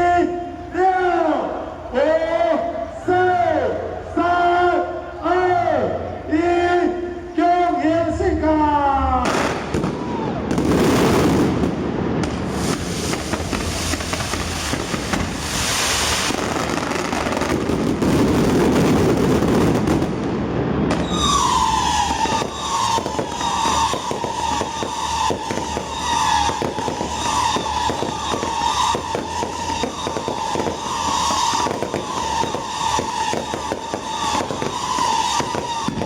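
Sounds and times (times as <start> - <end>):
fireworks bangs and crackling: 9.2 - 36.0
whistling fireworks: 9.2 - 36.0.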